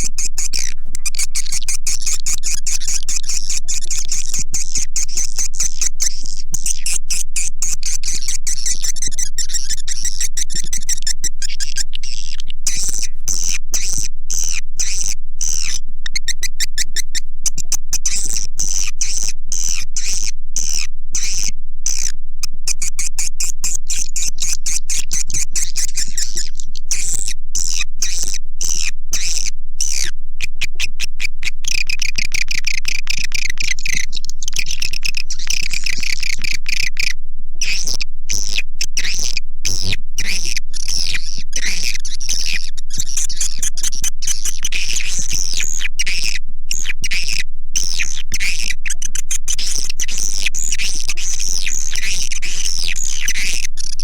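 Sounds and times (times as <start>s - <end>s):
swiftlets chirping rapidly: 0.0s - 20.2s.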